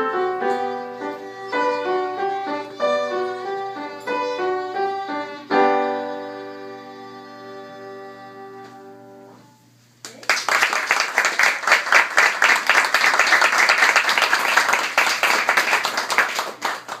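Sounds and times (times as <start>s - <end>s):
audience applauding: 10.1s - 17.0s.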